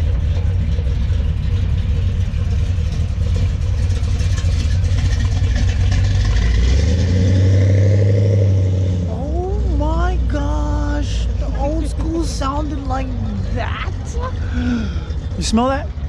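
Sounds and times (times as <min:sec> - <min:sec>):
car engine with deep exhaust: 0:00.0 - 0:16.0.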